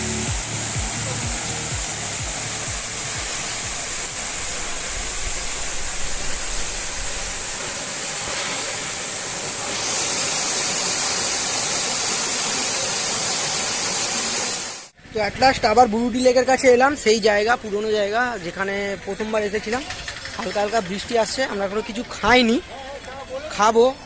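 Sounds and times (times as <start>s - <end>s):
waterfall pouring onto rocks: 0.0s - 15.0s.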